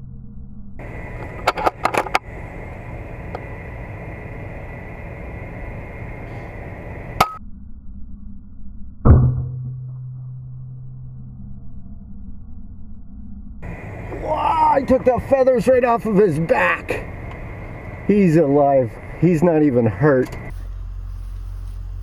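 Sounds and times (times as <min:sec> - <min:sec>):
steady air hiss: 0:02.2 - 0:07.2, 0:20.5 - 0:22.0.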